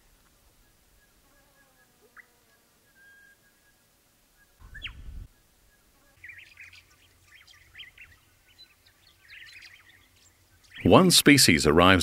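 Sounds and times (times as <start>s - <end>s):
quick bird chirps and whistles: 4.6s - 5.2s.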